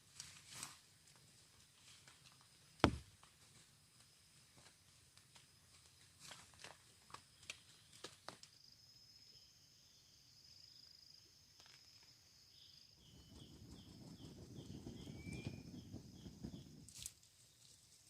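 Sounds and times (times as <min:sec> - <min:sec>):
insect high-pitched trill: 0:05.3 - 0:18.0
insect short chirps: 0:07.3 - 0:17.8.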